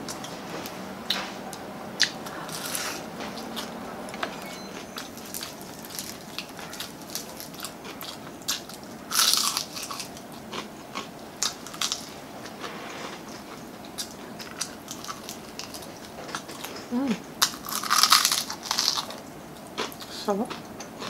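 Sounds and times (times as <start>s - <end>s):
person crunching fried chicken: 5.0s - 12.1s, 17.4s - 20.1s.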